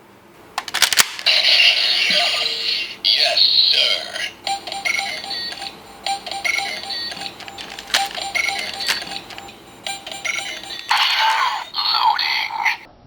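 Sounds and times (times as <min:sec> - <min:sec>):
toy clicks: 0:00.6 - 0:02.3, 0:04.5 - 0:11.7
toy transformation sound: 0:00.6 - 0:04.3, 0:06.6 - 0:09.5, 0:10.1 - 0:12.9
electronic toy jingle: 0:01.3 - 0:03.0, 0:03.7 - 0:12.5.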